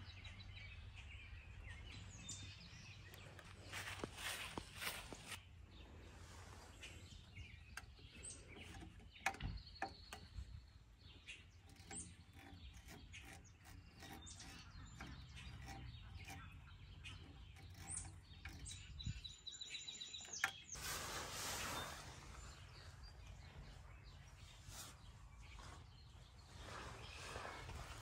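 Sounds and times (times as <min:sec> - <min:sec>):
faint birdsong: 0:00.0 - 0:28.0
lantern switch clicks and rustles: 0:07.8 - 0:10.4, 0:11.6 - 0:19.1, 0:20.0 - 0:20.8.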